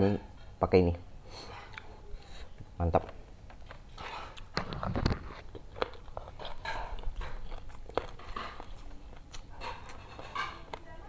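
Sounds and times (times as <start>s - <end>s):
chewing with crunches: 3.5s - 10.9s.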